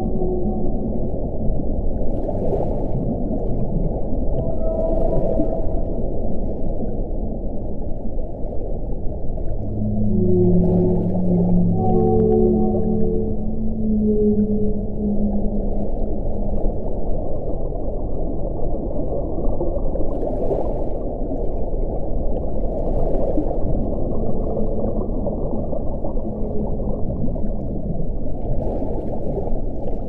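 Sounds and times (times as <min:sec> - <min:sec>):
faint low moaning tone: 0:00.0 - 0:02.0, 0:03.3 - 0:07.8, 0:08.9 - 0:17.8, 0:23.7 - 0:28.4
deep wind blowing: 0:00.0 - 0:29.8.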